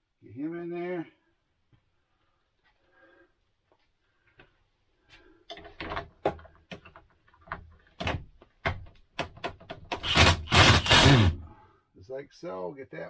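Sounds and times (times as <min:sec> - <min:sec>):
plastic duct part clicking and knocking: 0:05.5 - 0:11.5.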